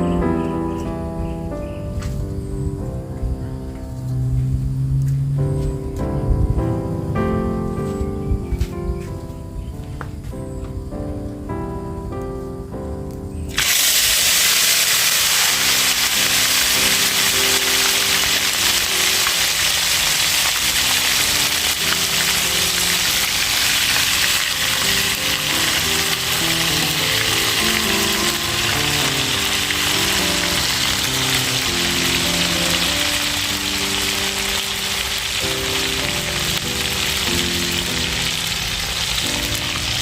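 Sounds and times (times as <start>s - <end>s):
music: 0.0s - 40.0s
fish deep-frying in hot oil: 13.5s - 40.0s.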